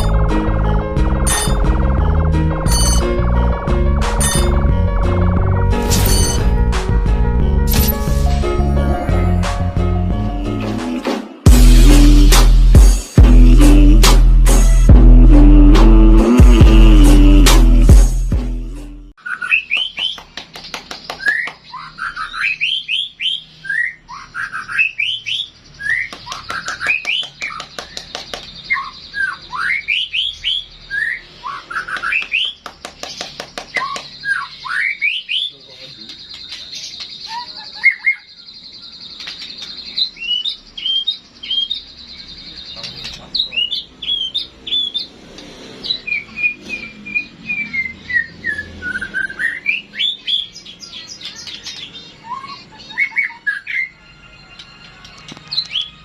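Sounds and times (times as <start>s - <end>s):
bird whistled song: 19.2s - 20.2s, 21.0s - 32.6s, 33.7s - 45.1s, 45.8s - 56.0s
bird singing whistled phrases: 28.7s - 32.6s, 46.0s - 50.5s, 51.5s - 54.0s.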